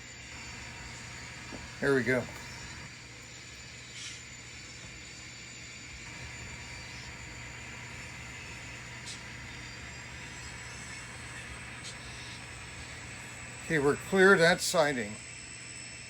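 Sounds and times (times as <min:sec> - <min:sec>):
model train engine rumble: 0:00.0 - 0:16.0.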